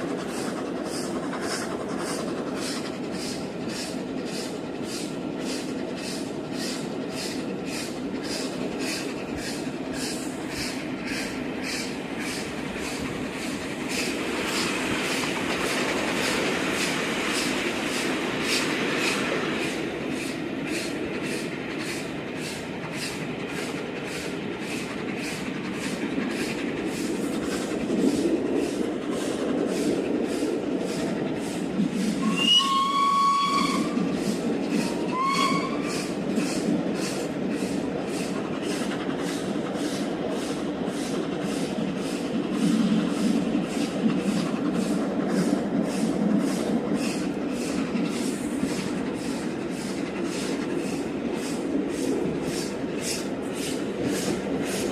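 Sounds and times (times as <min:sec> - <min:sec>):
train rumble with regular beat: 0:00.0 - 0:54.9
steam locomotive whistle: 0:32.2 - 0:34.0, 0:34.8 - 0:36.1.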